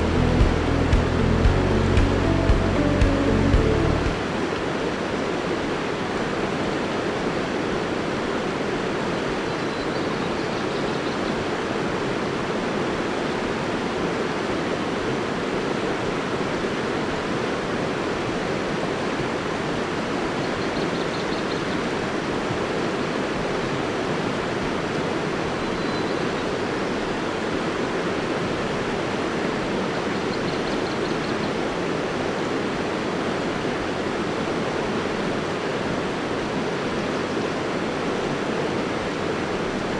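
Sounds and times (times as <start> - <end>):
river water rushing: 0.0 - 9.2, 31.5 - 39.9.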